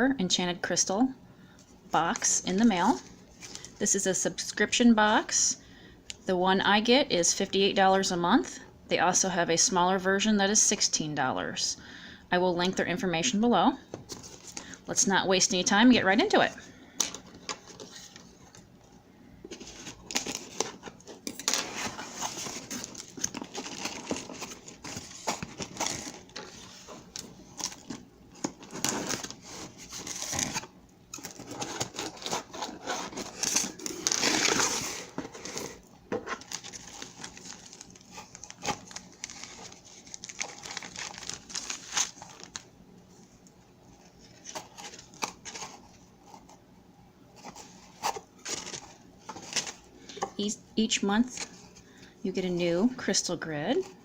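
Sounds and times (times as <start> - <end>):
crinkling and rustling of packaging: 2.0 - 3.9, 13.8 - 14.8, 16.1 - 46.7, 47.3 - 52.1.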